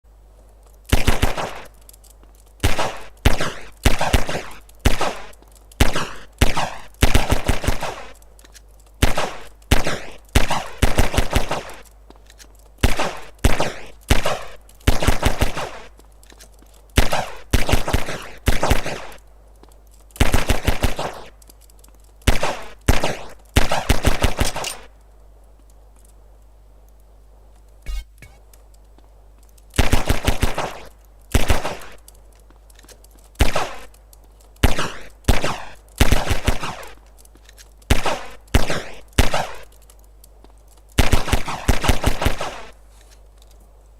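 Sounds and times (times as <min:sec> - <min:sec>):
automatic gunfire bursts: 0:12.8 - 0:15.9.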